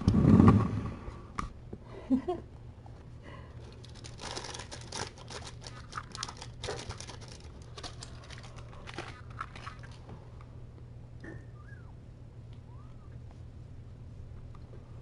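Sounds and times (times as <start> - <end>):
crinkly material rustling: 3.6 - 10.0.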